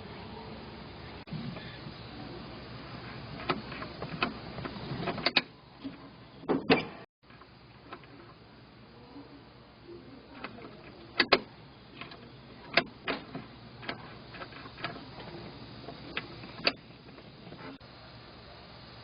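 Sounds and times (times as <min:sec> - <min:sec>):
low steady background: 0:00.0 - 0:19.0
sharp clicks and knocks: 0:03.4 - 0:08.4, 0:10.4 - 0:17.8.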